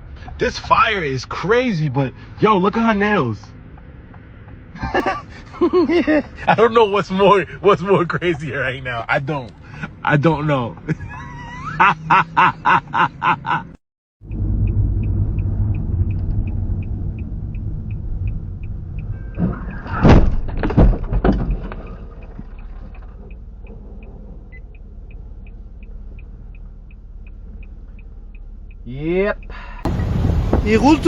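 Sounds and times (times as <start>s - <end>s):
vehicle rumble: 0.0s - 31.0s
light ticking: 14.3s - 19.5s, 21.7s - 30.0s.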